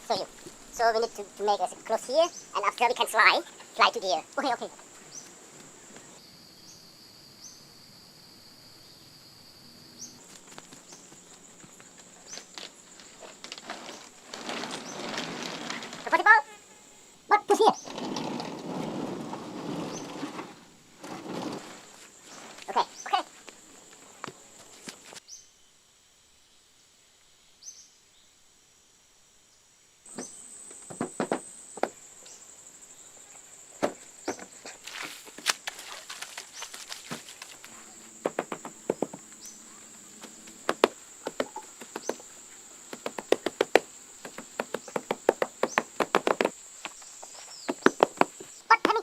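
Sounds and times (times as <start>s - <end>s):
sharp knocks and taps: 38.2s - 39.2s, 42.9s - 47.0s, 47.7s - 49.0s.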